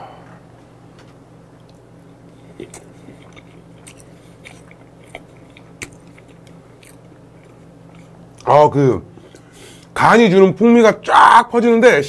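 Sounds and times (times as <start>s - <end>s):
low hum: 0.0s - 9.5s
man chewing food: 1.0s - 8.5s, 9.2s - 10.0s.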